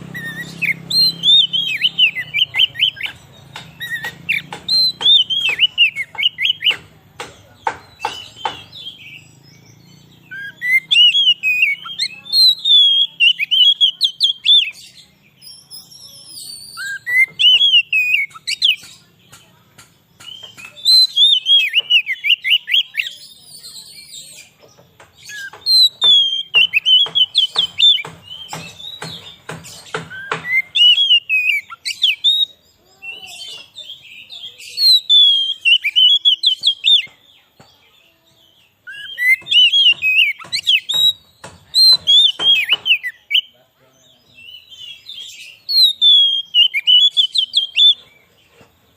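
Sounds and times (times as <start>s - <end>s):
bird sharp clicking notes: 0.0s - 9.2s, 16.7s - 32.5s
bird singing whistled phrases: 0.1s - 6.8s, 10.2s - 18.9s, 20.2s - 24.4s, 25.3s - 29.2s, 30.0s - 37.1s, 38.8s - 43.5s, 44.4s - 48.1s.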